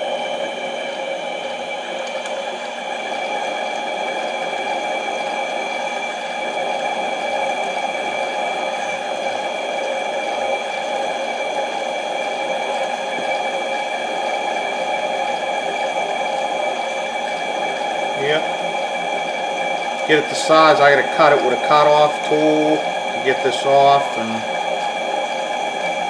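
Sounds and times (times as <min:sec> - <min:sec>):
lathe motor whining: 0:00.0 - 0:26.0.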